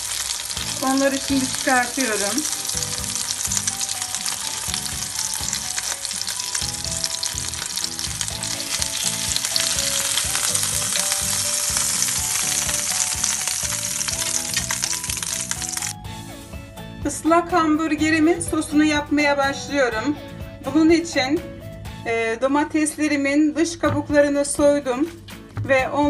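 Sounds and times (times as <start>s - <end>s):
patties sizzling in a frying pan: 0.0s - 16.0s.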